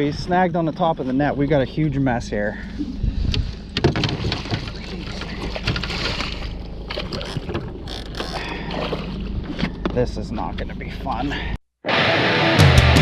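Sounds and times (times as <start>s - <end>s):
water splashing: 0.0s - 10.5s
boat engine hum: 0.0s - 11.6s
knocks and clicks in boat: 3.2s - 10.8s.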